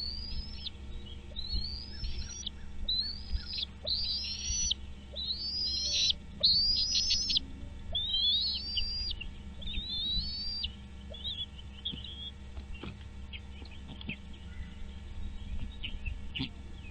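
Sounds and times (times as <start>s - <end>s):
bird whistled calls: 0.0s - 12.4s.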